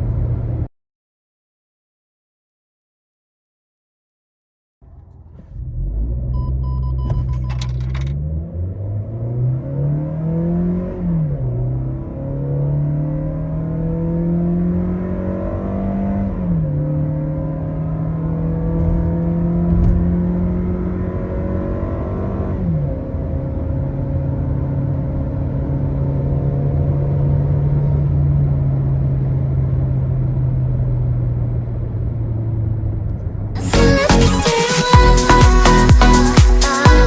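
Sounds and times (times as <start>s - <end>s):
car engine accelerating hard: 4.8s - 7.0s, 7.8s - 34.4s.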